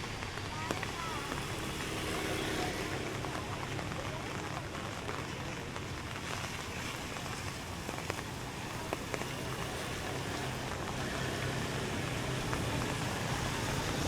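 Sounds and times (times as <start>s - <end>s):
motor traffic: 0.0s - 14.0s
rain: 0.0s - 14.0s.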